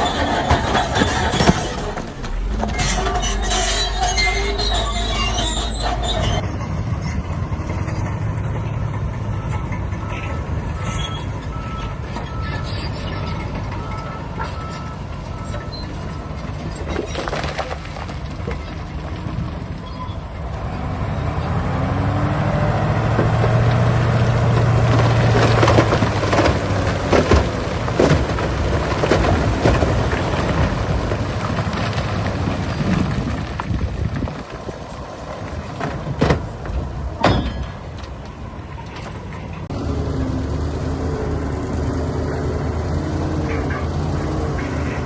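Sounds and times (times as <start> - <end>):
heavy diesel machine engine: 0.0 - 16.8, 18.2 - 33.7, 34.6 - 45.0
rocks knocking and clattering: 24.6 - 38.3.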